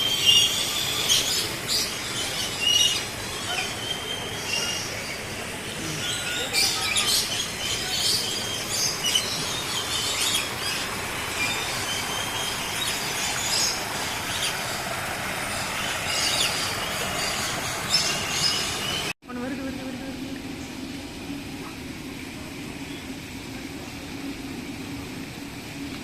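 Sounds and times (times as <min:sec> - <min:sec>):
birds chirping and squawking: 0:00.0 - 0:19.1
steady background hiss: 0:00.0 - 0:26.0.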